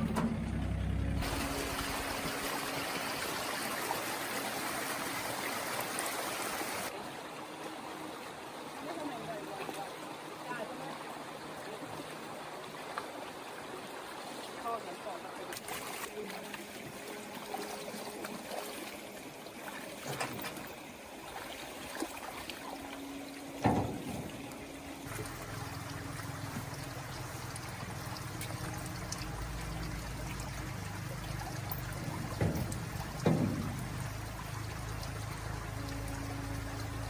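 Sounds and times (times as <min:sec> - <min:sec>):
low motor hum: 0:00.0 - 0:03.7, 0:22.3 - 0:37.0
water trickling and pouring: 0:01.2 - 0:37.0
sharp knocks: 0:32.3 - 0:34.0.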